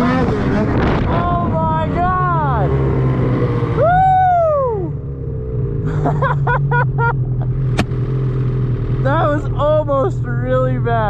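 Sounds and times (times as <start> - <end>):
loud rising-falling whoop: 3.7 - 5.0
snowmobile engine idling: 5.9 - 11.0
sharp click: 7.7 - 8.0.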